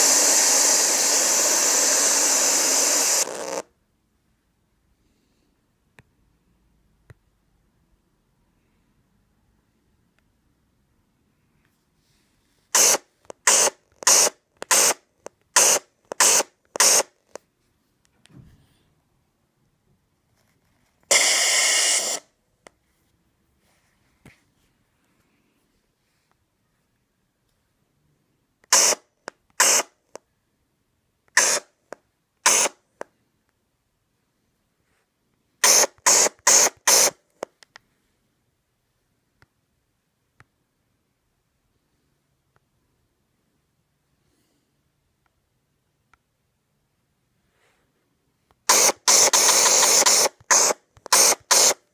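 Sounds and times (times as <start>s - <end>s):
static-like hiss bursts: 0.0s - 3.8s, 12.1s - 17.4s, 21.0s - 22.4s, 28.7s - 30.2s, 31.3s - 33.1s, 35.6s - 37.6s, 48.6s - 51.9s.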